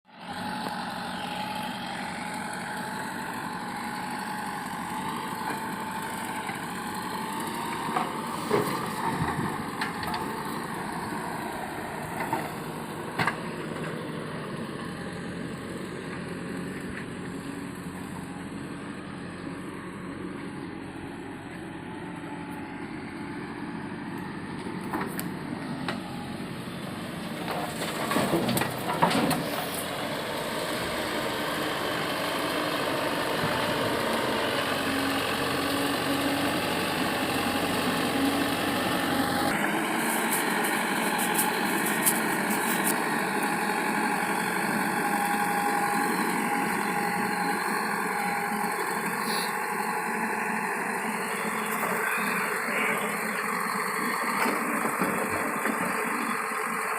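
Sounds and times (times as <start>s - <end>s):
diesel engine running: 0.1s - 56.9s
knocks and clanks: 27.5s - 29.6s.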